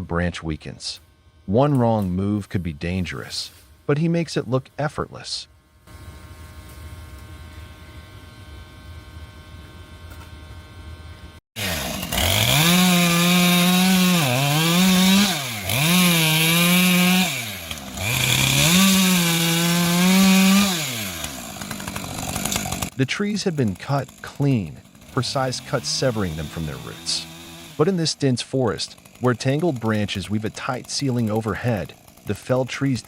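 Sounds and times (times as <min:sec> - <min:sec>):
chainsaw cutting wood: 0:05.8 - 0:10.7, 0:11.6 - 0:33.0.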